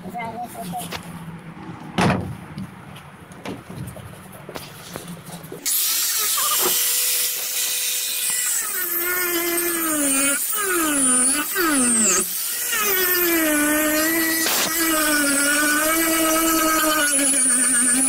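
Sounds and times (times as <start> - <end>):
power grinder whining: 5.6 - 18.0.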